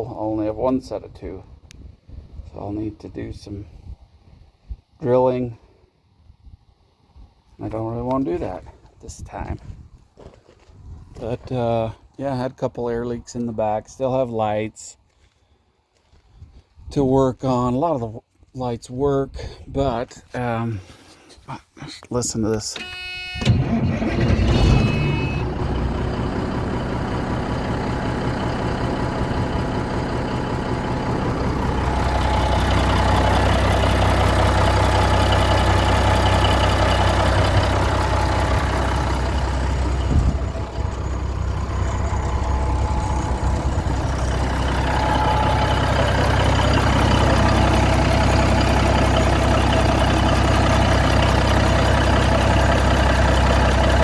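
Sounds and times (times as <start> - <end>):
diesel truck engine droning: 23.4 - 54.0.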